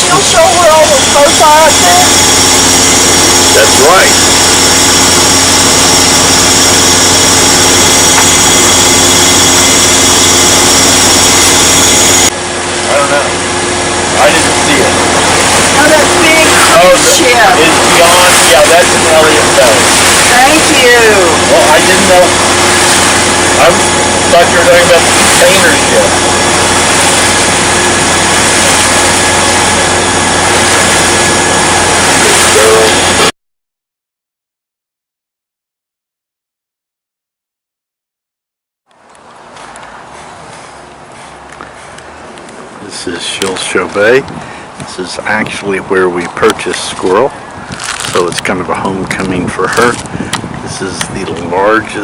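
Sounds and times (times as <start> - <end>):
low steady hum: 0.0 - 33.3
wind and water rushing: 0.0 - 33.3, 39.0 - 52.0
boat engine droning: 0.0 - 33.4, 38.9 - 52.0.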